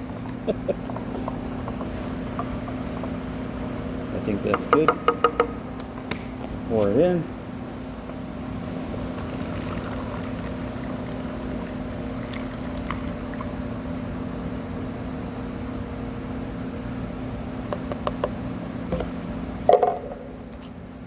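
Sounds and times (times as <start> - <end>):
low steady hum: 0.0 - 21.0
liquid pouring into container: 9.0 - 13.6.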